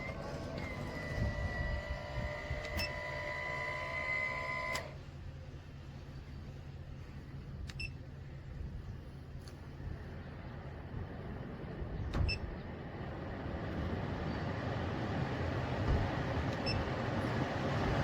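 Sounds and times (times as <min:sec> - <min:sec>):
vent fan motor whining: 0:00.0 - 0:05.0.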